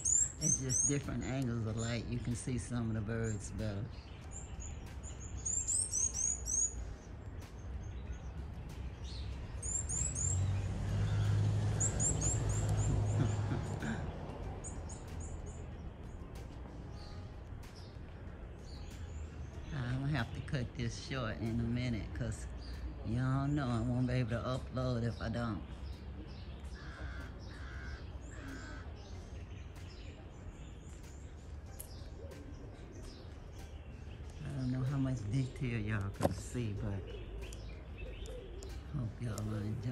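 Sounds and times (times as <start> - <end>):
low outdoor rumble: 0.0 - 39.9
small birds chirping: 0.0 - 39.9
harsh bird caw: 26.7 - 29.2.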